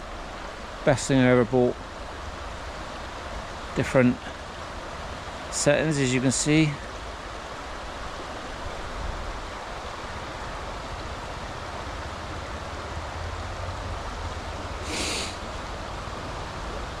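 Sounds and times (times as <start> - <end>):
rushing outdoor noise: 0.0 - 17.0
brief hiss: 14.8 - 15.4.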